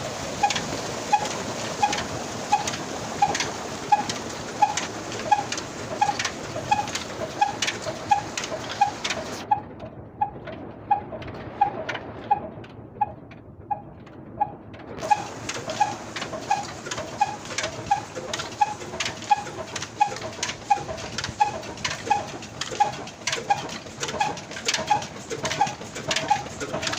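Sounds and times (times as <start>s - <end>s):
diesel engine running steadily: 0.0s - 26.9s
sharp engine clicks: 0.4s - 26.9s.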